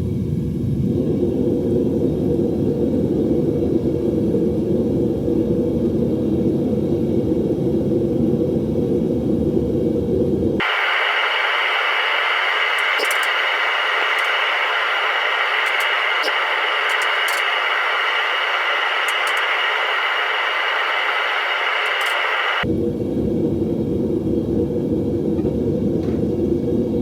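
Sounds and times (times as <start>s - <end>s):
faint clicks: 10.6s - 22.6s
high hiss: 10.6s - 22.6s
loud rumbling noise: 10.6s - 22.6s.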